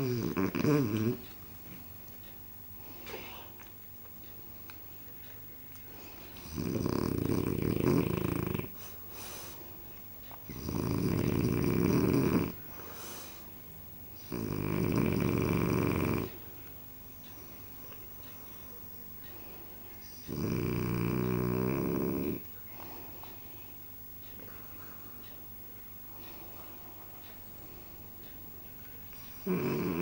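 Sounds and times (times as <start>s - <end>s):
dog snoring: 0.0s - 1.3s, 6.4s - 9.5s, 10.4s - 13.4s, 14.2s - 16.4s, 20.1s - 23.1s, 29.2s - 30.0s
soft dog breaths: 0.0s - 30.0s.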